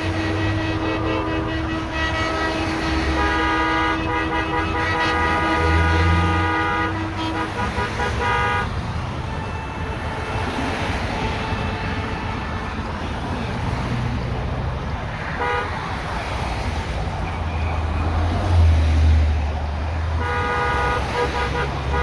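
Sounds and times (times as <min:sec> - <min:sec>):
car horn toot: 0:00.0 - 0:13.5, 0:15.4 - 0:15.8, 0:20.1 - 0:22.0
highway driving noise: 0:00.0 - 0:22.0.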